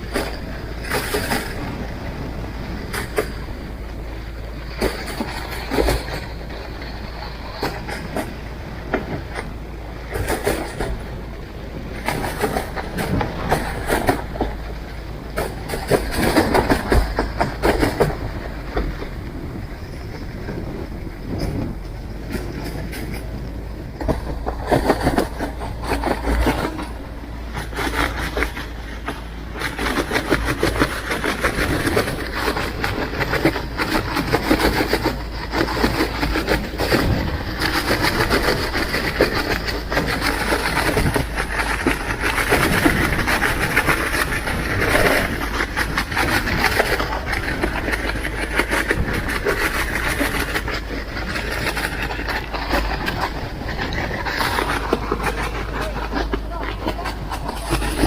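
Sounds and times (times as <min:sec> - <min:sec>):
boat engine chugging: 0:00.0 - 0:58.0
water in rough sea: 0:00.0 - 0:58.0
wind: 0:00.0 - 0:58.0.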